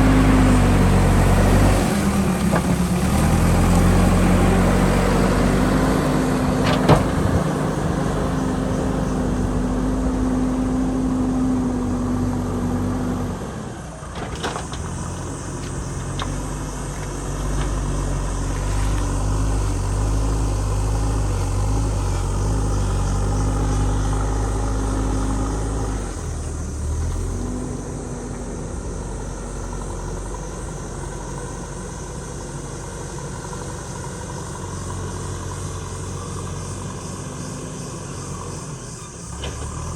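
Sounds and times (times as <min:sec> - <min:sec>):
diesel engine under load: 0:00.0 - 0:39.9
sharp knocks: 0:06.6 - 0:07.5.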